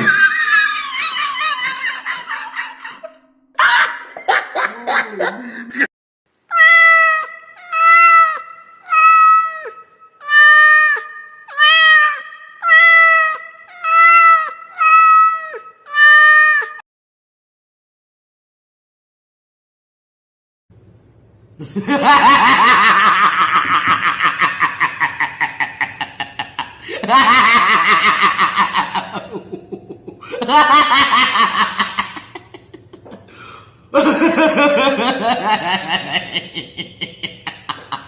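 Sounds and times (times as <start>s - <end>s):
person laughing: 0.0s - 5.9s, 21.6s - 38.0s.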